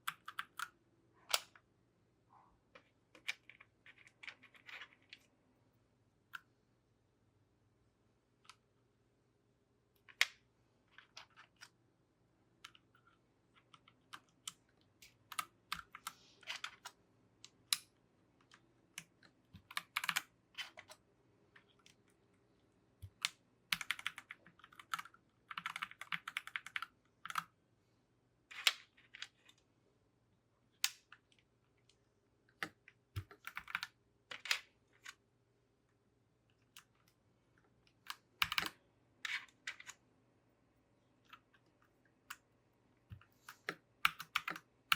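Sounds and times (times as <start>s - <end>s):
mechanical keyboard keys clicking: 19.0s - 21.0s, 23.0s - 27.5s, 32.6s - 33.9s, 38.1s - 38.8s, 43.1s - 44.7s.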